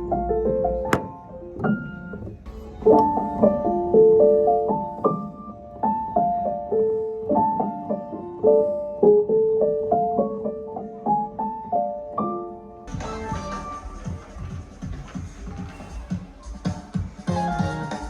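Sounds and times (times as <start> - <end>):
slow piano melody: 0.0 - 14.2
busy noisy music mix: 12.9 - 18.0.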